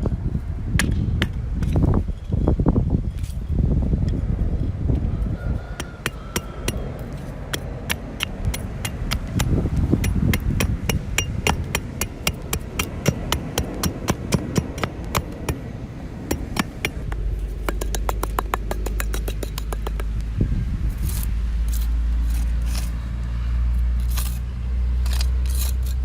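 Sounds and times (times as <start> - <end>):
low steady hum: 6.6 - 26.0
small hammer tapping: 16.3 - 20.2.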